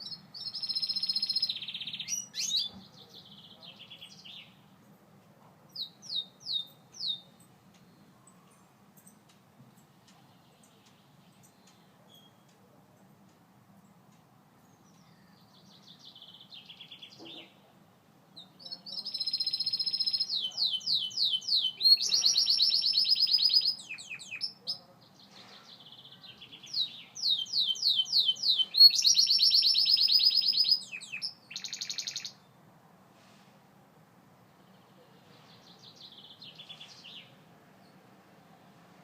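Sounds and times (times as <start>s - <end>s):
canary singing trills: 0.0s - 4.6s, 5.7s - 9.2s, 18.4s - 32.5s.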